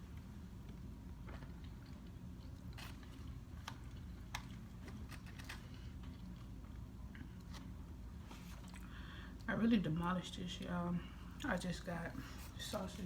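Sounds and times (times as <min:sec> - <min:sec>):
steady low hum: 0:00.0 - 0:13.0
person chewing and smacking: 0:00.6 - 0:07.6
small clicks and crackles: 0:00.7 - 0:06.5.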